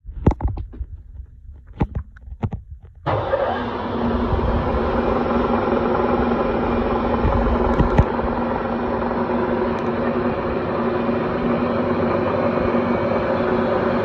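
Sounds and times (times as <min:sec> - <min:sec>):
sharp clicks and knocks: 0:00.1 - 0:03.1, 0:07.2 - 0:08.1
milling machine motor running: 0:03.7 - 0:13.3.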